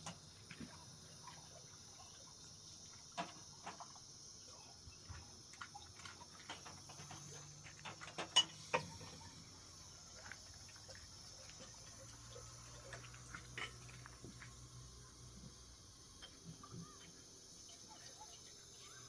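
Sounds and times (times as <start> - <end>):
faint steady high hiss: 0.0 - 19.0.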